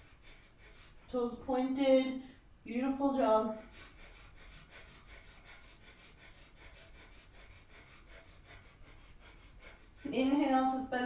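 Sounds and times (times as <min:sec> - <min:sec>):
forceful breaths through the nose: 0:00.0 - 0:01.1, 0:03.6 - 0:10.1.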